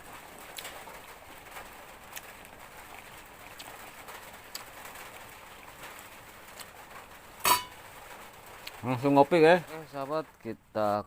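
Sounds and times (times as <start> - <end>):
steady rain hiss: 0.0 - 11.0.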